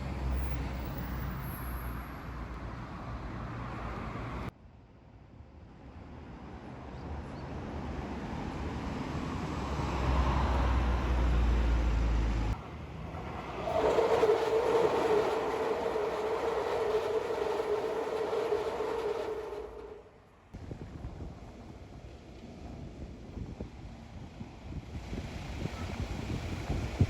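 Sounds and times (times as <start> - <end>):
train passing with heavy rumble: 5.7 - 27.0
train whine: 9.3 - 20.5.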